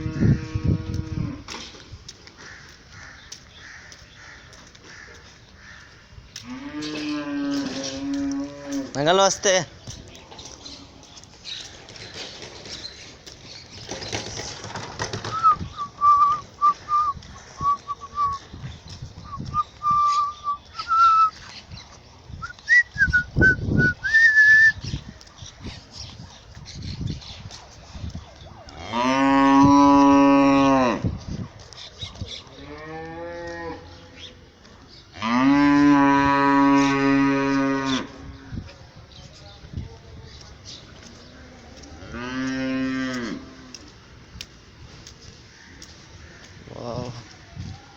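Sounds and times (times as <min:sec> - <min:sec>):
cattle mooing: 0:06.5 - 0:09.0.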